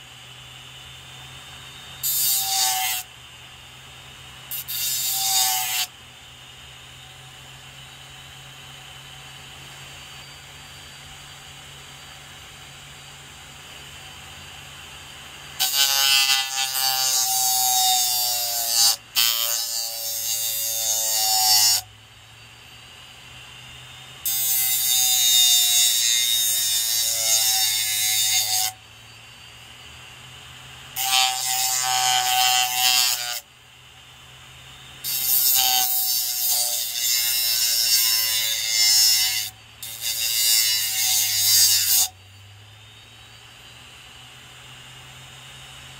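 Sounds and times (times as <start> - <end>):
low hum of spinning disc: 0.0 - 19.2, 20.4 - 24.3, 28.8 - 31.4, 42.1 - 45.9
blade grinding on sandpaper disc: 1.7 - 3.1, 4.4 - 6.0, 15.5 - 21.8, 24.2 - 29.6, 30.9 - 33.5, 35.0 - 42.2.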